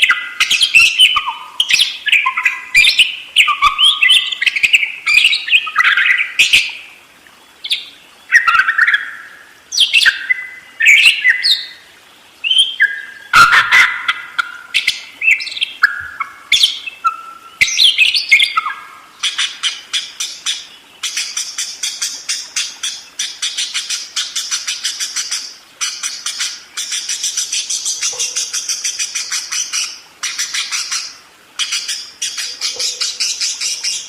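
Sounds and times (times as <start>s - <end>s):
budgerigar chattering and warbling: 13.3s - 21.4s.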